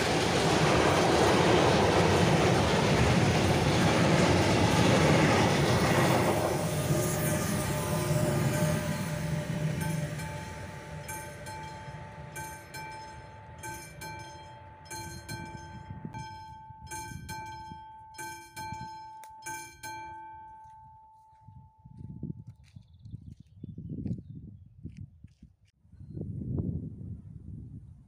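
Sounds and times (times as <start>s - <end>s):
level crossing warning bell: 0.0s - 22.3s
passing train: 0.0s - 22.4s.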